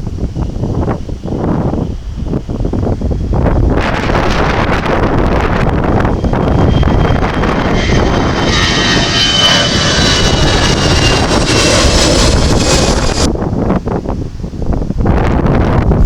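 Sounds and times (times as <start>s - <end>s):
turboprop engines droning: 0.0s - 15.5s
wind buffeting microphone: 0.0s - 16.0s.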